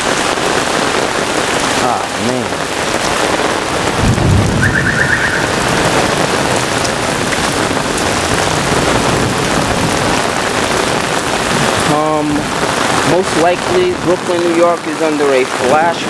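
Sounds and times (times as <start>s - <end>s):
heavy rain pouring: 0.0s - 16.0s
high warbling tone: 4.2s - 6.7s.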